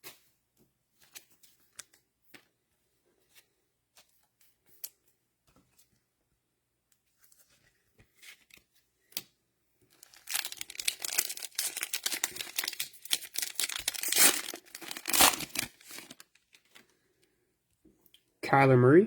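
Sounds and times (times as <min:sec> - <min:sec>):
cellophane wrapper tearing and crinkling: 0:09.9 - 0:16.7.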